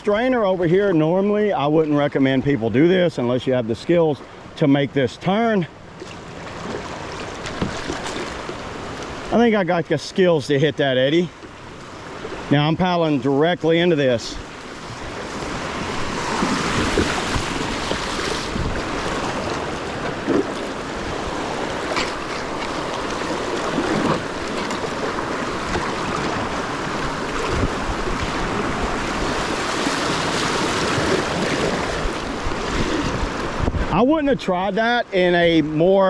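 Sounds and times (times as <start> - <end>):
rushing river current: 0.0 - 36.0
paddle splashes: 5.8 - 9.7, 14.4 - 33.9.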